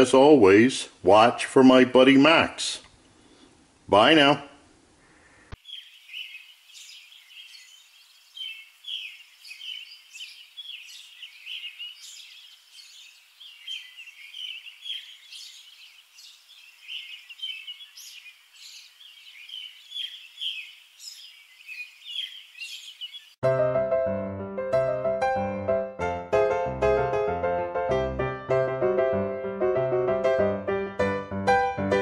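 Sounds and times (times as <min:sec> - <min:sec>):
small birds chirping and twittering: 0:05.0 - 0:23.4.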